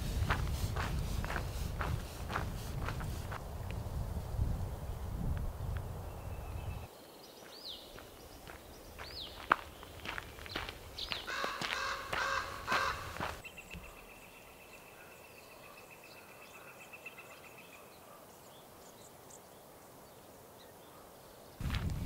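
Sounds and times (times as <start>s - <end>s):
harsh crow-like calls: 11.2s - 13.4s.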